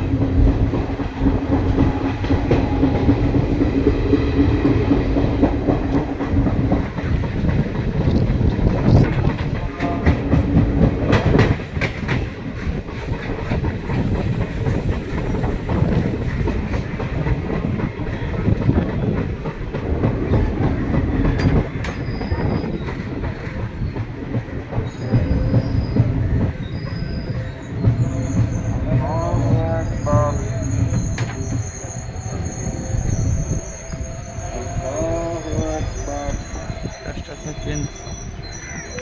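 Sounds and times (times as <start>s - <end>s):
rail clicks: 0.0s - 39.0s
train wheels rumbling on rails: 0.0s - 39.0s
faint high squeals: 21.3s - 23.5s, 24.9s - 39.0s.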